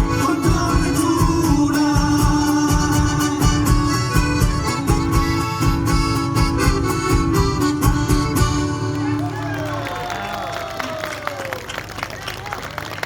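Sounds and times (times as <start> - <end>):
folk music plucked guitars: 0.0 - 9.6.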